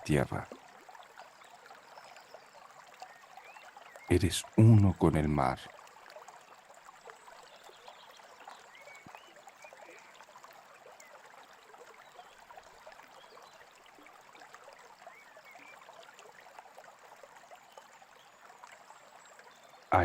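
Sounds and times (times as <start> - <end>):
stream trickling: 0.0 - 20.0
faint bird chirps: 1.8 - 4.6, 7.3 - 10.2, 14.6 - 16.1.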